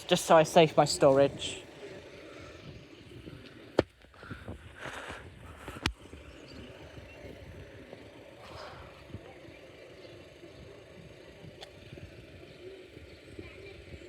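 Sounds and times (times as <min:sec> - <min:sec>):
cars idling: 0:00.0 - 0:14.0
road traffic rumble: 0:00.0 - 0:14.0.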